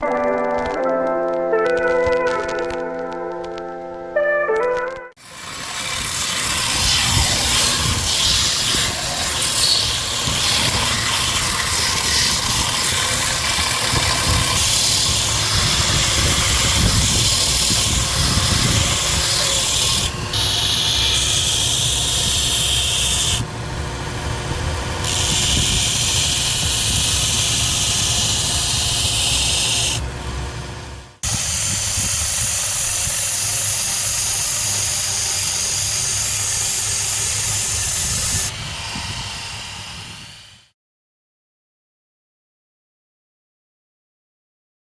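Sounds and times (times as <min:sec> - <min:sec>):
belt grinder motor hum: 0:05.2 - 0:40.7
grinding hiss of steel on belt: 0:31.2 - 0:39.1.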